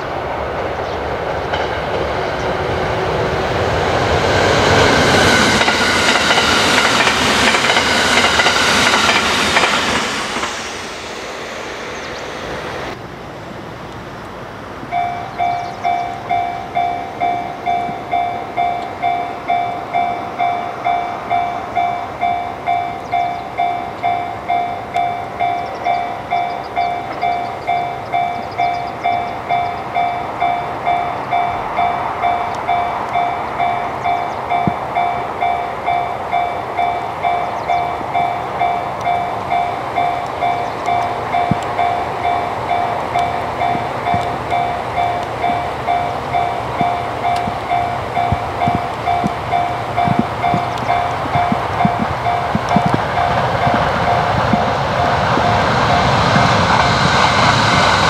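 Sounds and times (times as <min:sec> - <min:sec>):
electric train passing: 0:00.0 - 0:58.0
level crossing bell ringing: 0:14.9 - 0:54.4.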